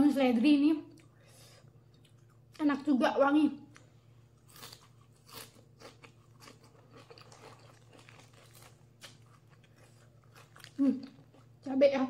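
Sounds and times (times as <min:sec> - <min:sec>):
celery being chewed: 0:03.7 - 0:11.7.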